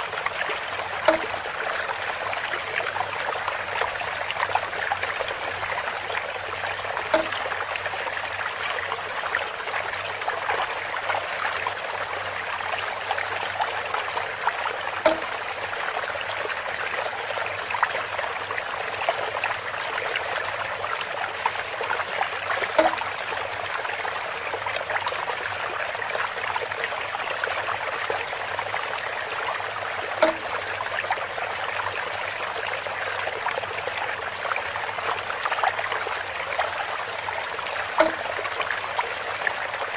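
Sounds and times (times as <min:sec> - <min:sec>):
water trickling and splashing: 0:00.0 - 0:39.9
bamboo knock: 0:01.0 - 0:01.3, 0:07.1 - 0:07.4, 0:15.0 - 0:15.3, 0:22.8 - 0:23.0, 0:30.2 - 0:30.5, 0:38.0 - 0:38.3.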